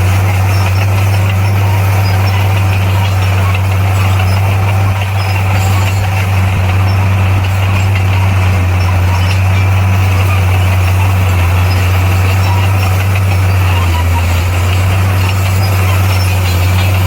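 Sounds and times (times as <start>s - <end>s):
bulldozer diesel engine droning: 0.0s - 17.0s.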